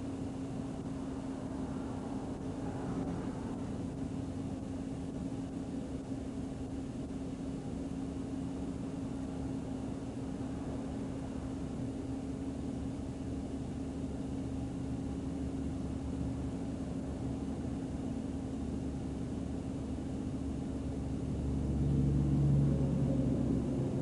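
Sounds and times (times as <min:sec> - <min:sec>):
vehicle rumble with hum: 0:00.0 - 0:24.0
low tone: 0:21.2 - 0:24.0.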